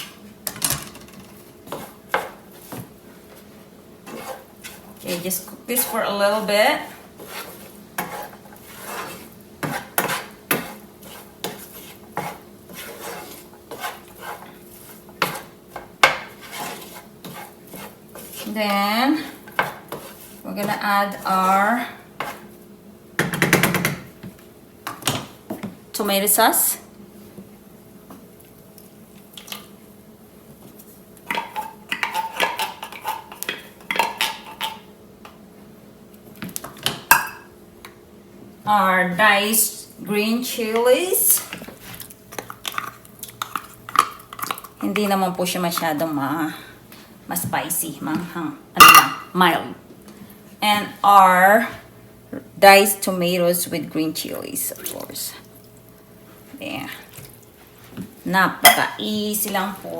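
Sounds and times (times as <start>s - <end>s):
utensil scraping a pan: 1.6s - 22.6s.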